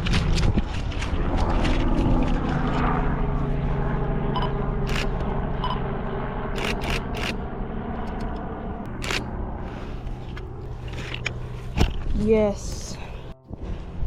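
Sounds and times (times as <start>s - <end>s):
propeller airplane drone: 0.0s - 14.0s
camera shutter clicks: 4.9s - 5.2s, 6.6s - 7.4s, 9.0s - 9.3s.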